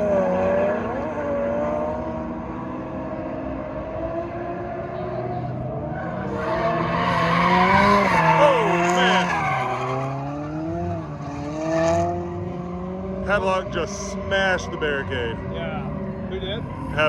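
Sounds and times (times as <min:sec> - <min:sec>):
car engine revving: 0:00.0 - 0:17.0
tyres squealing: 0:06.2 - 0:10.2.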